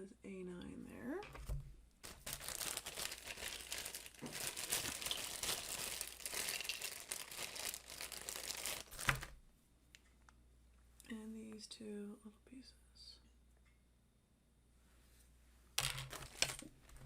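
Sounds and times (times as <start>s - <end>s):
plastic bag crinkling: 1.2s - 9.4s, 15.8s - 17.0s.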